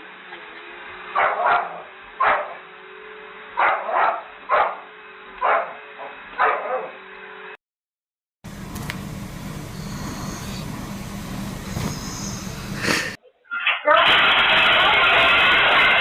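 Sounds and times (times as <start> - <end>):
dog barking: 1.2 - 2.6, 3.6 - 7.0
low hum: 8.5 - 13.2.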